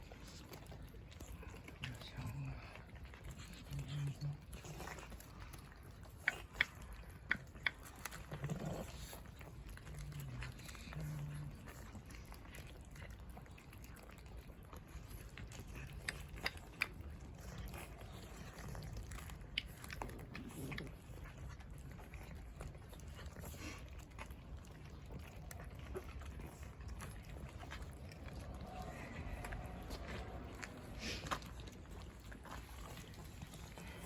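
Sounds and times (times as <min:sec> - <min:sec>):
cats chewing: 0:00.0 - 0:34.0
low steady rumble: 0:20.9 - 0:34.0.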